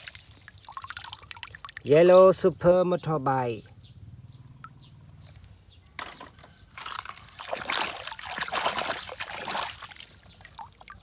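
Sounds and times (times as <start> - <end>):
water trickling and splashing: 0.0 - 2.1, 6.7 - 11.0.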